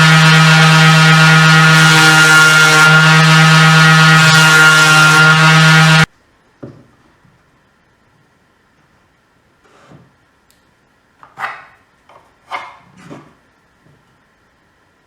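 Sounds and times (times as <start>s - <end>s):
table saw motor whining: 0.0s - 6.1s.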